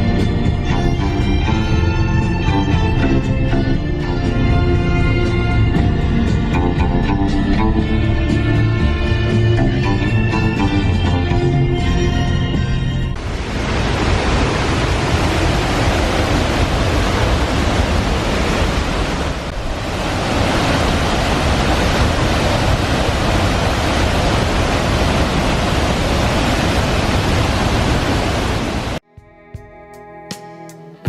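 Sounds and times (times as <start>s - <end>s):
waterfall rushing: 13.2s - 29.0s.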